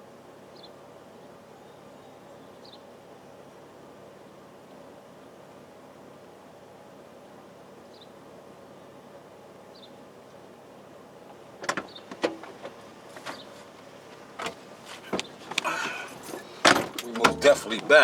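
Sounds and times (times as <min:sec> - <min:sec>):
sharp clicks and clunks: 0:11.6 - 0:18.0
vehicle interior hum: 0:11.6 - 0:18.0.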